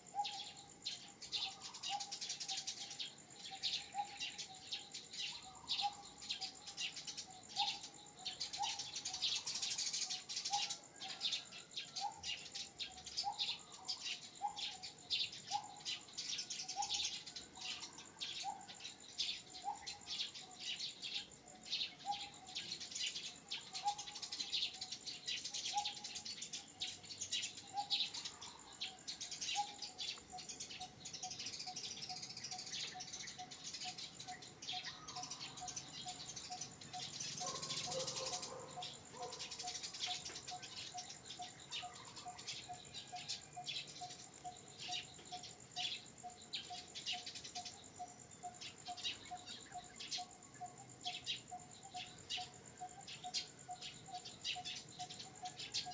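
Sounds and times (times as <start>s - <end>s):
birds chirping: 0.0s - 55.9s.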